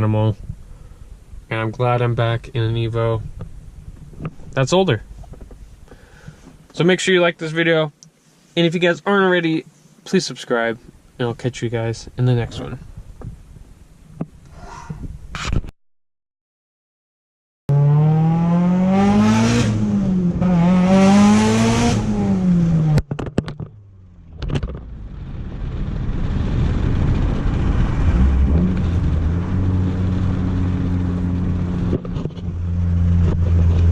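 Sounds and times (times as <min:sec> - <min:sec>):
car engine revving: 0:17.7 - 0:23.1, 0:26.3 - 0:33.9.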